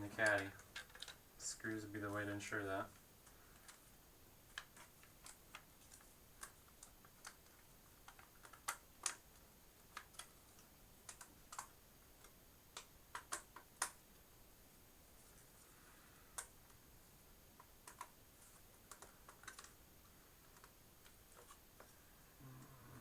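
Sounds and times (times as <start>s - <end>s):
plastic caddies clicking: 18.8s - 19.8s.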